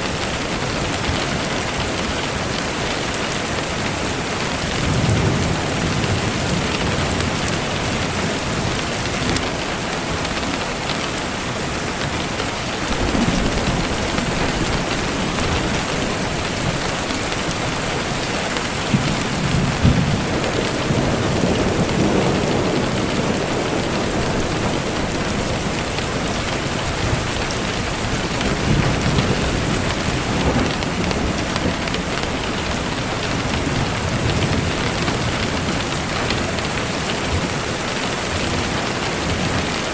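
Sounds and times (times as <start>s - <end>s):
heavy rain pouring: 0.0s - 39.9s
low rolls of thunder: 4.6s - 9.5s, 12.8s - 37.6s.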